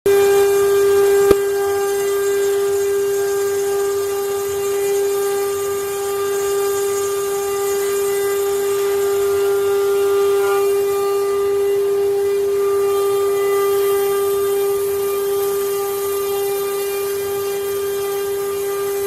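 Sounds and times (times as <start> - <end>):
router spindle whining: 0.1 - 19.0
sharp click: 1.2 - 1.5.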